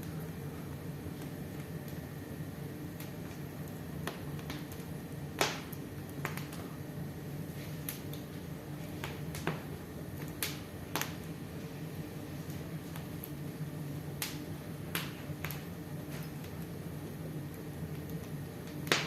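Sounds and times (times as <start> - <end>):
steady low hum: 0.0 - 19.0
wood fire crackling: 0.0 - 19.0.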